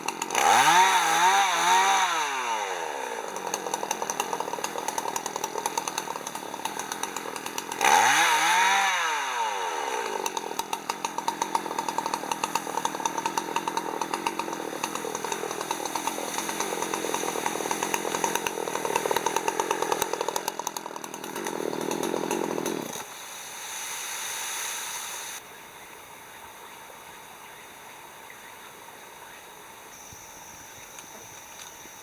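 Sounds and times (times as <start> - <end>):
chainsaw cutting wood: 0.0 - 25.4
low hiss: 23.1 - 32.0.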